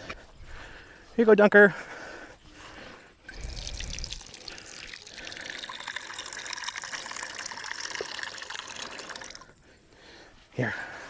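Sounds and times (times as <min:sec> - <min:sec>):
water pouring into a bowl: 0:03.3 - 0:09.6.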